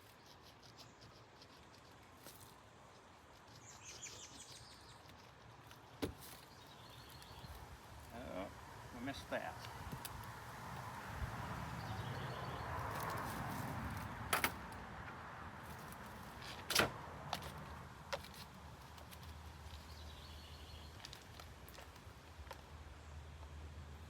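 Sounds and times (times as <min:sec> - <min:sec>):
low wind rumble: 0:07.4 - 0:18.8.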